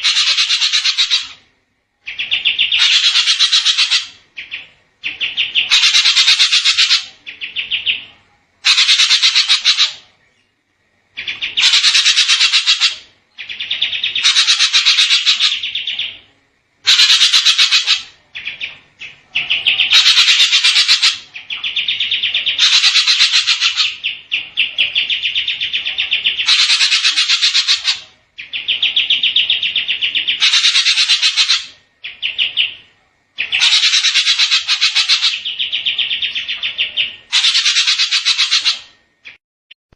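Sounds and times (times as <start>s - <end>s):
bird singing fast trills: 0.0s - 1.4s, 2.0s - 10.1s, 11.2s - 16.3s, 16.9s - 39.4s.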